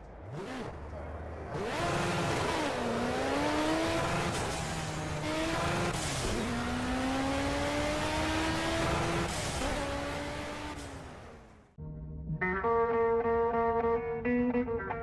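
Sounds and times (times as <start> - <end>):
car engine accelerating through gears: 0.1 - 11.5.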